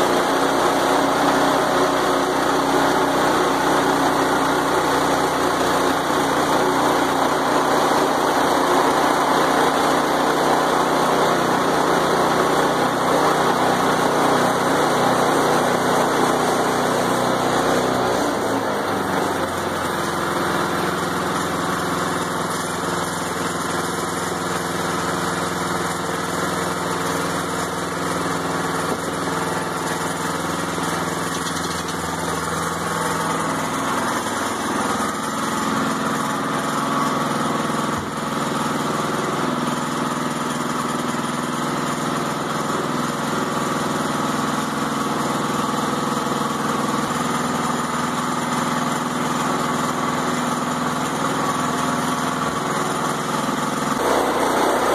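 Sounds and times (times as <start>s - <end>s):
sawmill gas engine running: 0.0s - 54.9s.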